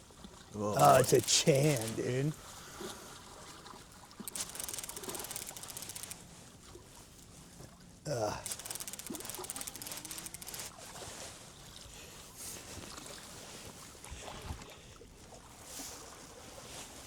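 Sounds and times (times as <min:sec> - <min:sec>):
water and boat noise: 0:00.0 - 0:17.0
fishing reel ratcheting: 0:00.8 - 0:02.2, 0:04.3 - 0:06.2, 0:08.4 - 0:10.7.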